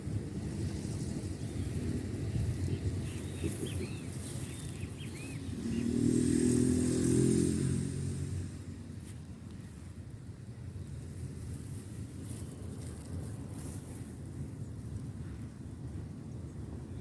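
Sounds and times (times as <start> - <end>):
low outdoor rumble: 0.0 - 17.0
vehicle engine passing: 4.2 - 9.0.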